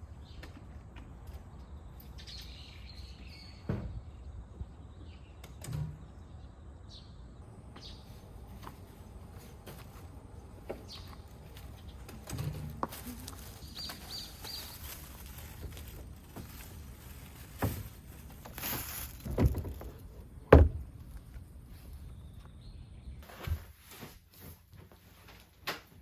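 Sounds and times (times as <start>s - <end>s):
knocks and thuds: 18.8s - 20.9s.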